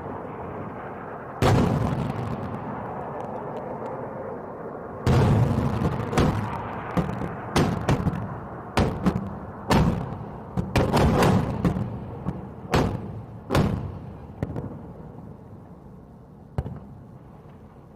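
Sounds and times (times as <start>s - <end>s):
booming explosions: 1.4s - 3.0s, 5.0s - 15.0s.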